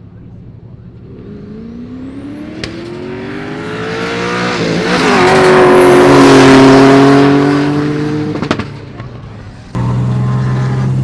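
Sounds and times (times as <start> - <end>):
car engine accelerating hard: 0.8 - 11.0.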